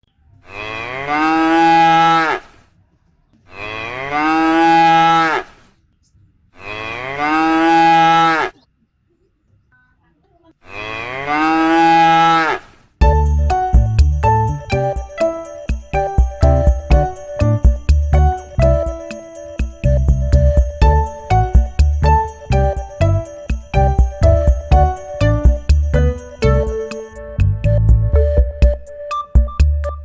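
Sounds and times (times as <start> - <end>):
jingly music: 13.0 - 30.0.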